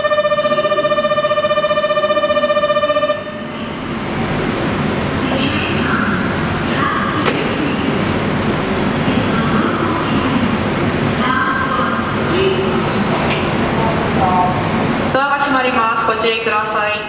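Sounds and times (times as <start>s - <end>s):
pulsing electronic signal tone: 0.0s - 3.6s
electric train rumbling: 0.0s - 17.0s.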